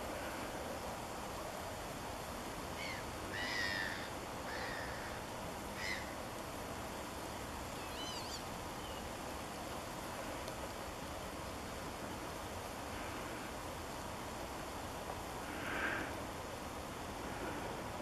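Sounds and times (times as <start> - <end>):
steady background hiss: 0.0 - 18.0
harsh bird calls: 5.8 - 6.2, 7.8 - 9.0
thin high bird call: 7.8 - 9.1.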